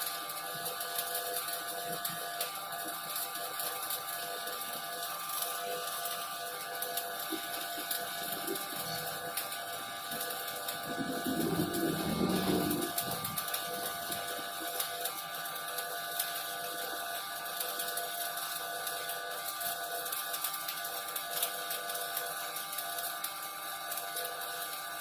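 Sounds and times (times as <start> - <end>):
welding arc crackling: 0.0 - 25.0
faint steady hum: 7.2 - 14.9.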